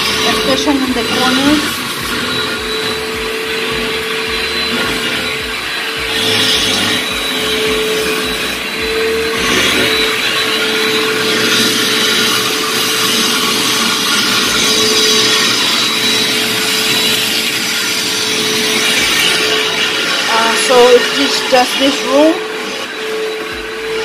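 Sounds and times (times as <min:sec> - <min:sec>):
backpack vacuum whine: 0:00.0 - 0:24.0.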